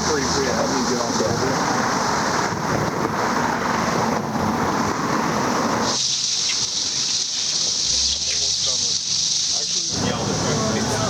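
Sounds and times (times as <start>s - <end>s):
loud rushing noise: 0.0s - 6.3s
cicadas droning: 0.0s - 11.0s.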